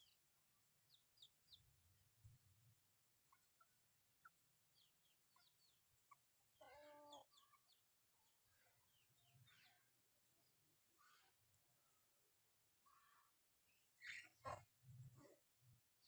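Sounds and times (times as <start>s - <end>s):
chickens chirping: 4.2s - 7.8s.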